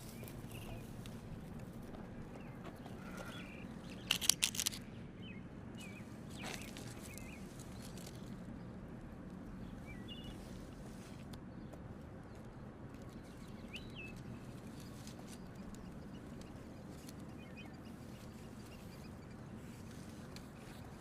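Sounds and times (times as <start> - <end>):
small birds chirping: 0.0 - 8.8, 9.4 - 21.0.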